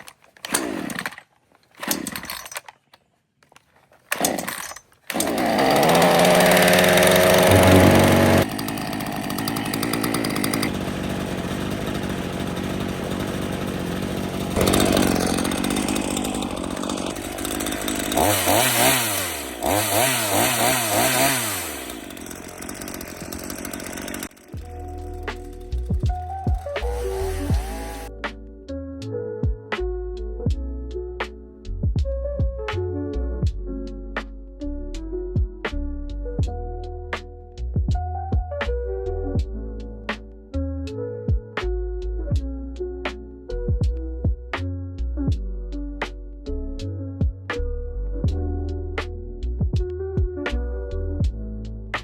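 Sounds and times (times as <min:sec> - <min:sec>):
chainsaw engine revving: 0:00.0 - 0:02.6, 0:04.1 - 0:28.1
chainsaw starter pulls: 0:00.0 - 0:28.1.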